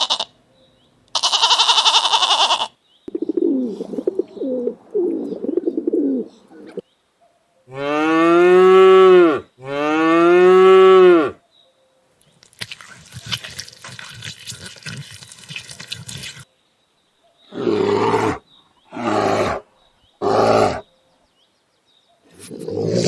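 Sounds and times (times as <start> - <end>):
lion roaring: 17.5 - 19.6, 20.2 - 20.8, 22.4 - 23.0.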